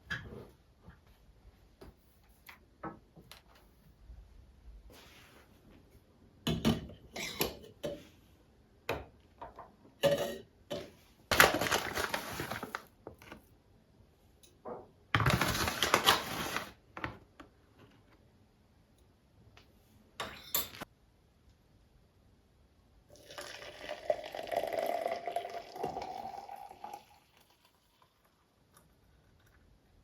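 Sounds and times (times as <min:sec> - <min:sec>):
kitchenware clattering and clinking: 0:06.5 - 0:08.1, 0:09.4 - 0:11.0, 0:20.2 - 0:20.9.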